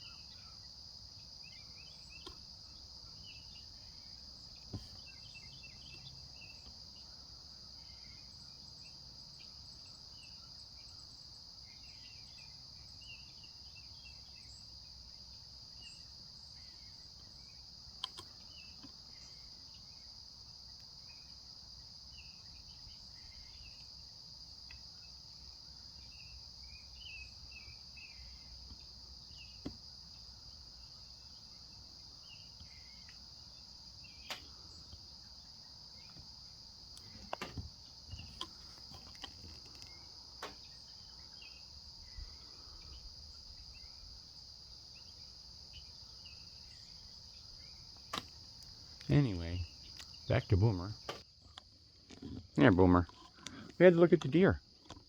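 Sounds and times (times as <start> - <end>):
short insect chirps: 0.0 - 54.7
insect chorus trilling: 0.0 - 55.0
sharp clicks: 18.0 - 18.3.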